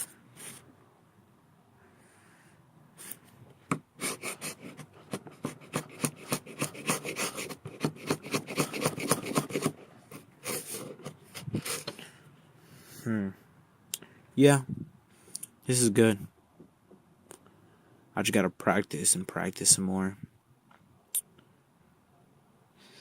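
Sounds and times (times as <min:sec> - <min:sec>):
chisel rubbed on sharpening stone: 0:04.0 - 0:11.0.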